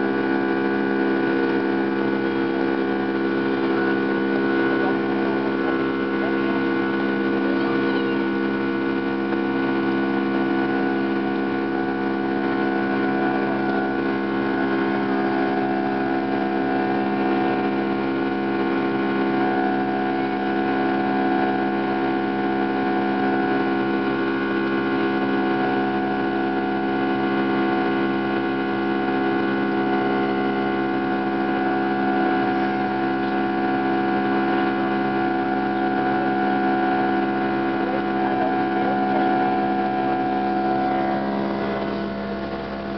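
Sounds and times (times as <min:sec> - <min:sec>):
airliner engines droning in cabin: 0:10.5 - 0:24.6, 0:29.8 - 0:42.9.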